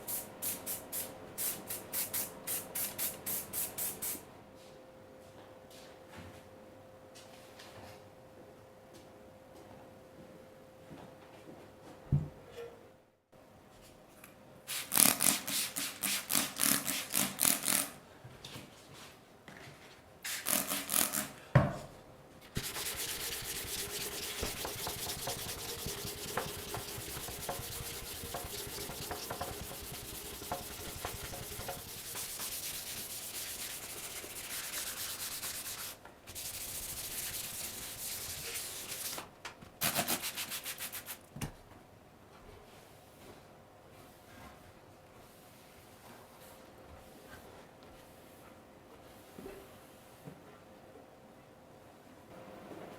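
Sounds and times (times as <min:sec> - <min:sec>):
sanding scraping strokes: 0:22.6 - 0:39.2, 0:40.2 - 0:41.2.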